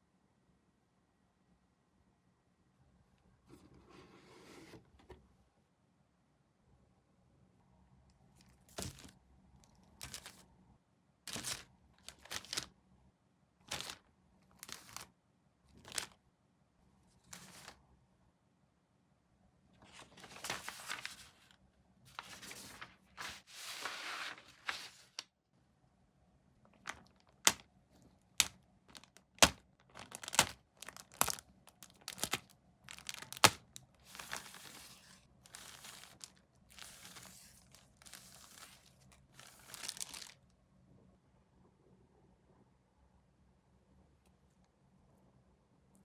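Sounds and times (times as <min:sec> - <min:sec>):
plastic packaging crinkling: 0:08.7 - 0:09.1, 0:10.0 - 0:10.4, 0:11.3 - 0:12.7, 0:13.7 - 0:14.0, 0:14.6 - 0:15.1, 0:15.8 - 0:16.2, 0:17.2 - 0:17.8, 0:19.9 - 0:25.2, 0:26.8 - 0:27.6, 0:28.4 - 0:40.4.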